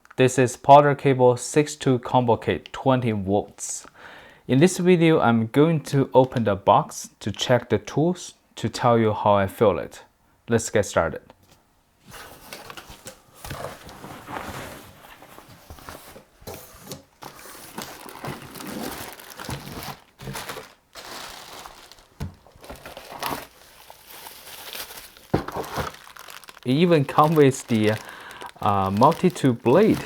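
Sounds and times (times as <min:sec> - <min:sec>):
packaging crinkling and rustling: 0:12.1 - 0:30.0.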